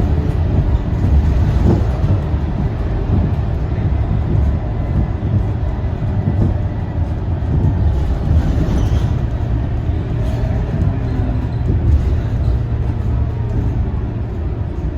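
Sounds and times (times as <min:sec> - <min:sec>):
bus diesel engine rumble: 0:00.0 - 0:14.9
road noise: 0:00.0 - 0:14.9.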